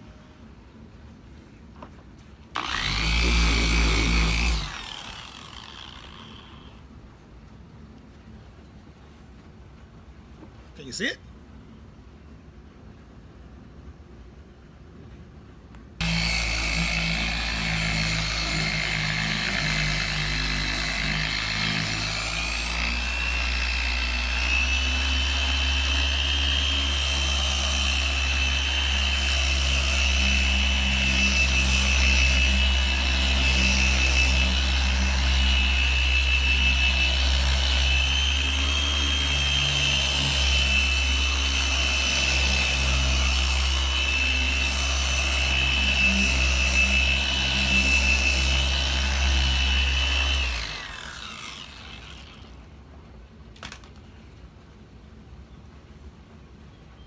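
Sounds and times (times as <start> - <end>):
electric polishing machine whine: 2.6 - 6.7, 16.0 - 52.4.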